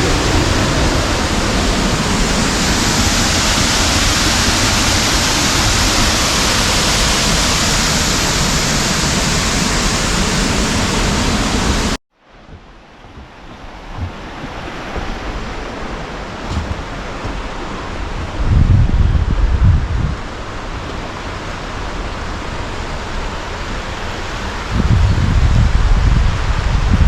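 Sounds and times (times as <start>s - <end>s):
waterfall rushing: 0.0s - 12.0s, 20.2s - 24.8s
quiet rushing noise: 0.0s - 18.6s.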